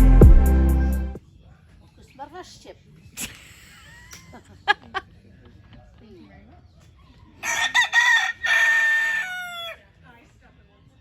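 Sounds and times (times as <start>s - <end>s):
rooster crowing: 7.4s - 9.8s.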